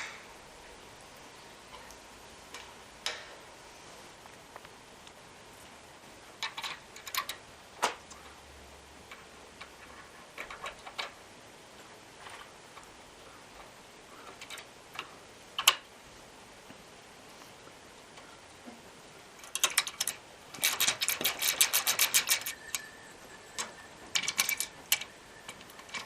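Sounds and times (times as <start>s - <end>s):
hand tools clicking and tapping: 2.5s - 3.4s, 6.4s - 8.2s, 13.5s - 15.9s, 19.4s - 26.0s.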